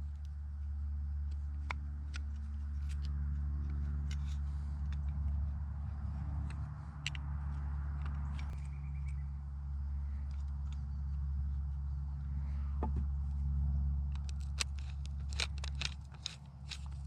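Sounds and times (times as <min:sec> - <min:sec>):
metal parts clicking and tapping: 0:00.0 - 0:09.2, 0:14.1 - 0:17.0
steady low hum: 0:00.0 - 0:17.0.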